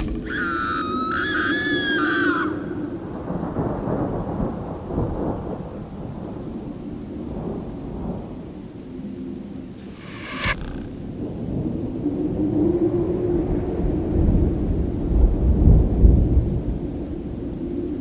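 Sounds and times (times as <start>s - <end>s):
low rumbling crackling noise: 2.9s - 18.0s
high wavering screech: 9.8s - 11.1s.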